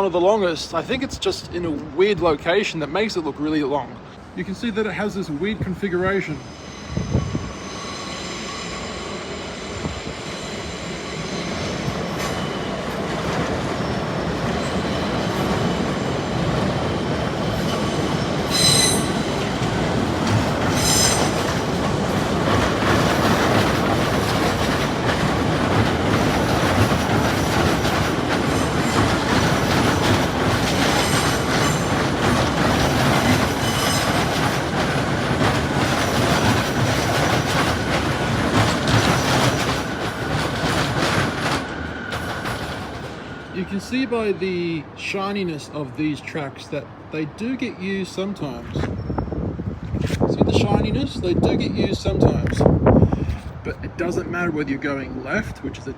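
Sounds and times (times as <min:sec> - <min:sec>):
steel wheels squealing: 0:06.3 - 0:12.8, 0:17.5 - 0:19.6, 0:20.5 - 0:21.8, 0:26.2 - 0:34.9
train wheels clattering on rails: 0:09.7 - 0:43.5.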